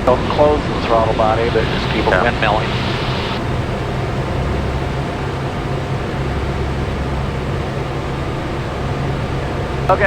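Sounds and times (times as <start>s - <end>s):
low engine drone: 0.0s - 10.0s
rush of airflow: 1.4s - 5.2s.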